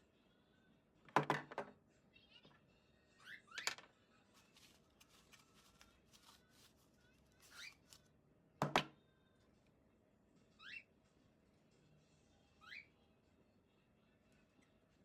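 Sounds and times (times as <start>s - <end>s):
handling small plastic parts: 3.6s - 8.0s.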